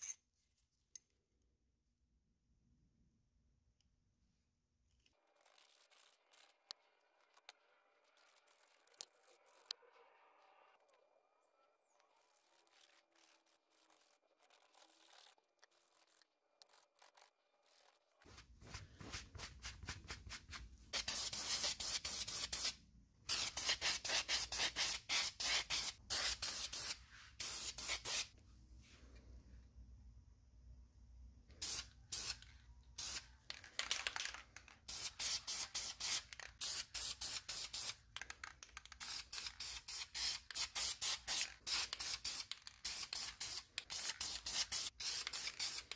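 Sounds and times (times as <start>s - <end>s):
spray paint can hissing: 19.0s - 28.4s, 31.6s - 45.9s.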